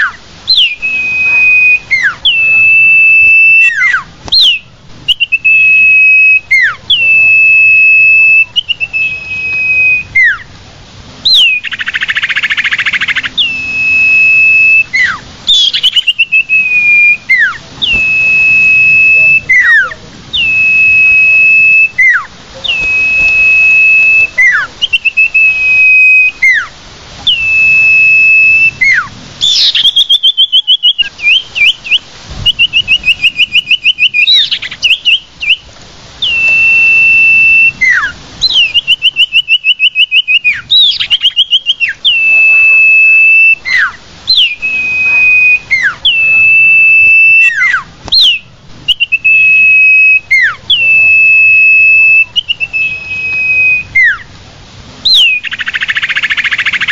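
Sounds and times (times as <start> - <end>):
bird whistling song: 0.0 - 10.5, 11.2 - 54.3, 55.0 - 56.9
bird rapid trills: 11.2 - 26.7, 27.3 - 35.6.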